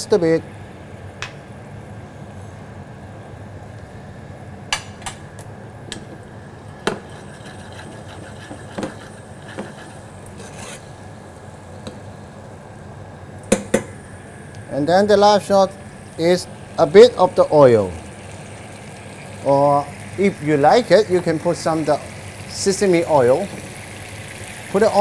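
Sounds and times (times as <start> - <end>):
steady background hum: 0.0 - 25.0
utensil knocking against a wok: 6.8 - 7.2, 8.5 - 9.8, 13.5 - 14.0
sauce being stirred: 6.9 - 11.0.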